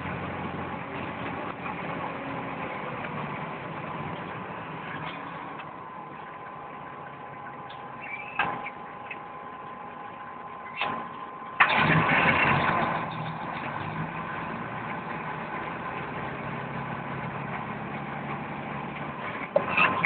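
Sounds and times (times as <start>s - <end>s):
engine knocks: 10.7s - 20.0s
engine starting and idling: 10.7s - 20.0s.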